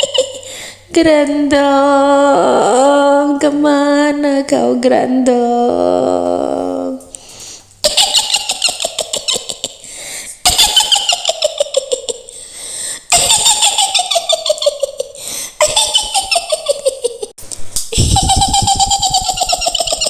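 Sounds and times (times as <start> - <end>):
woman cackling: 7.8 - 9.8, 10.4 - 12.3, 13.1 - 17.3, 17.9 - 20.0.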